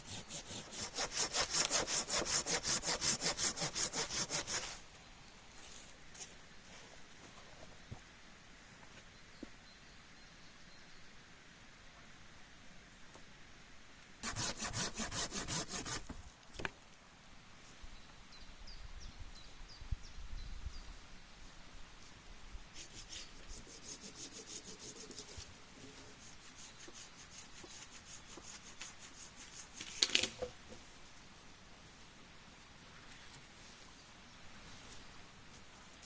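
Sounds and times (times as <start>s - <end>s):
hand saw cutting wood: 0.0s - 4.8s, 14.2s - 16.1s, 23.0s - 25.5s.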